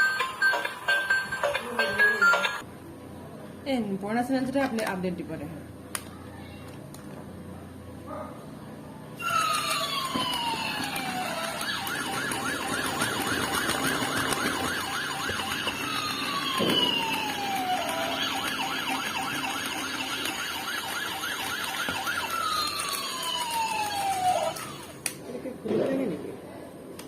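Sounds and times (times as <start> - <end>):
toy electronic siren: 0.0 - 2.6, 9.2 - 25.0.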